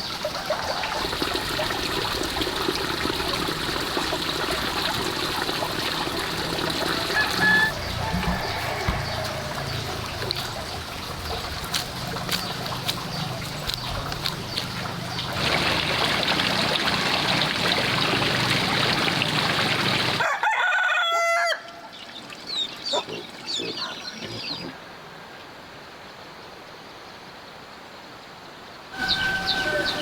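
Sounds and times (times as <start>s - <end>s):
rooster crowing: 6.8s - 10.4s, 20.2s - 21.8s, 29.0s - 30.0s.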